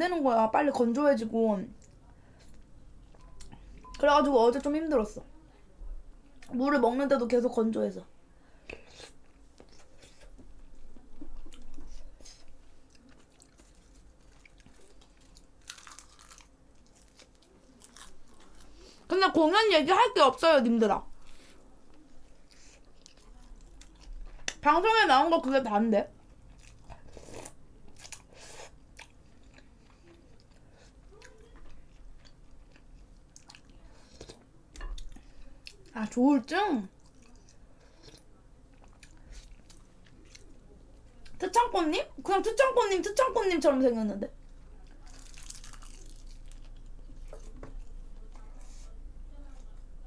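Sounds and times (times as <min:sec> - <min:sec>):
person chewing food: 0:11.2 - 0:19.1, 0:26.2 - 0:35.9, 0:37.0 - 0:40.6, 0:44.8 - 0:48.8.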